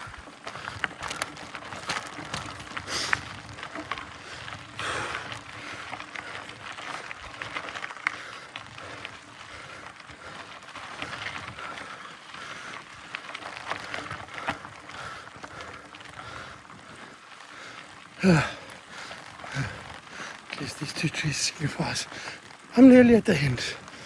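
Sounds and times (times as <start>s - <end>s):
tyres crunching over gravel: 0.0s - 24.0s
bike clicks and knocks: 0.1s - 9.1s.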